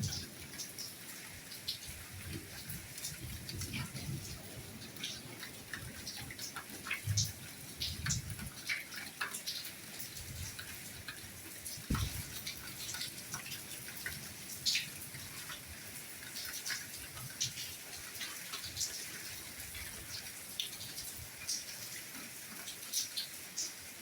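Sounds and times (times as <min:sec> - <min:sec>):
raindrops pattering: 0:00.0 - 0:24.0
soft rain hissing: 0:00.0 - 0:24.0
low thud: 0:11.9 - 0:12.3.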